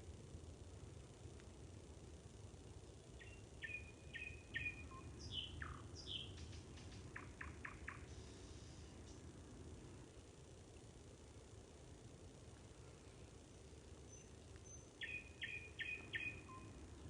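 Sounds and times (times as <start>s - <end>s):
steady low hiss: 0.0s - 17.0s
songbird singing: 2.6s - 9.6s, 13.7s - 17.0s.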